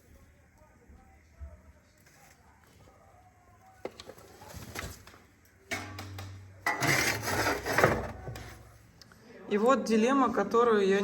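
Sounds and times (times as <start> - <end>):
rubbing and scraping: 6.7 - 8.7.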